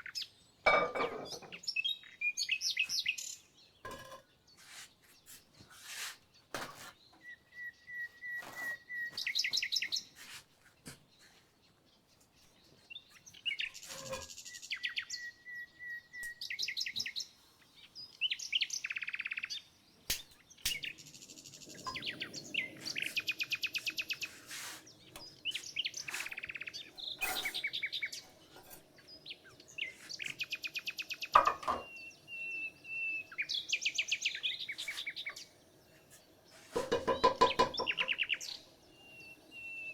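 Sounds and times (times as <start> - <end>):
songbirds singing: 0.0 - 39.9
knock: 36.8 - 38.1.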